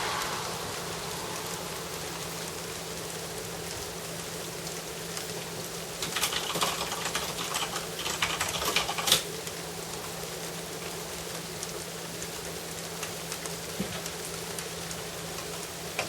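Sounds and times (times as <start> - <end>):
steady rain: 0.0 - 16.0
rapid close ticks and taps: 6.0 - 9.3.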